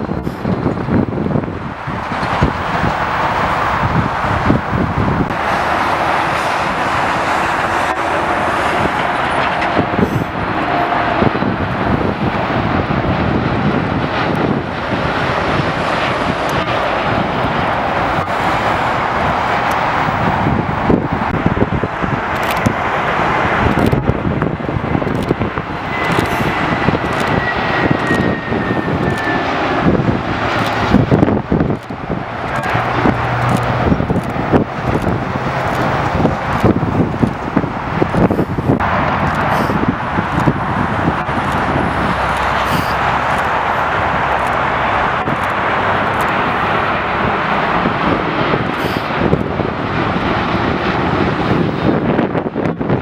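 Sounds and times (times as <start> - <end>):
jet engines running: 0.0 - 53.0
wind buffeting microphone: 0.0 - 53.0
high whine sinking in pitch: 23.6 - 53.0.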